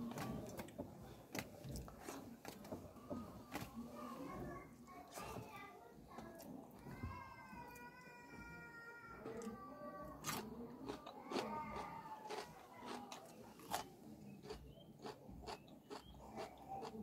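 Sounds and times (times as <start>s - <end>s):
person chewing food: 10.2s - 17.0s.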